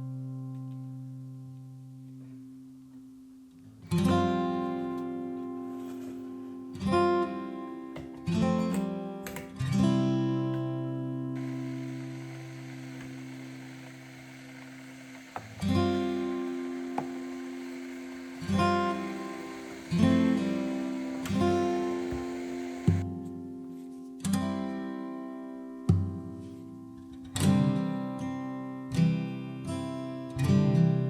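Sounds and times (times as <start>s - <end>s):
acoustic guitar strumming chords: 11.4s - 23.2s.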